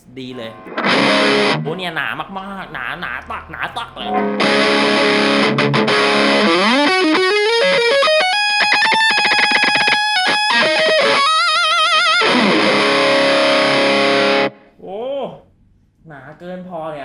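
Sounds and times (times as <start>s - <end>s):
distorted electric guitar: 0.4s - 1.8s, 4.0s - 14.6s.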